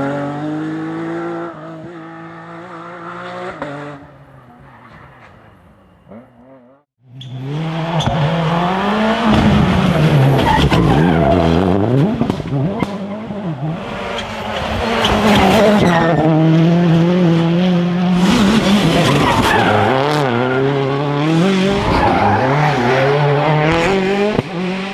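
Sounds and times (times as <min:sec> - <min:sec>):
rally car engine at full throttle: 0:00.0 - 0:24.9.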